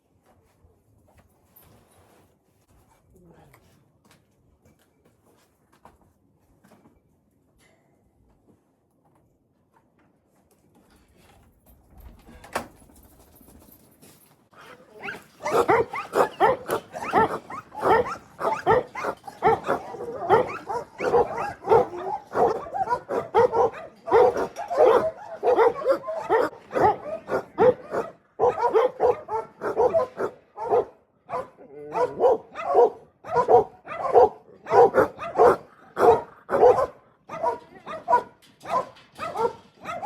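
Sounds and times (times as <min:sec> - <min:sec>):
dog barking: 0:15.0 - 0:40.0.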